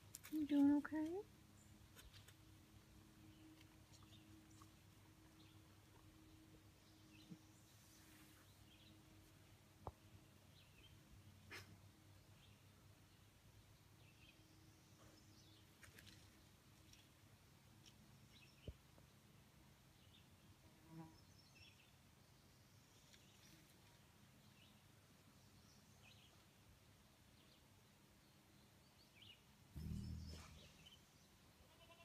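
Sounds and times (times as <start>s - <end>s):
faint bird chirps: 29.0s - 32.0s
brief low rumble: 29.8s - 30.8s.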